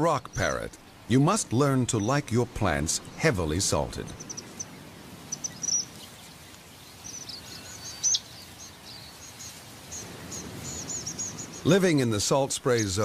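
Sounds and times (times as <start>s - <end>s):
steady rushing noise: 0.0s - 13.0s
parrots chirping: 4.1s - 6.1s.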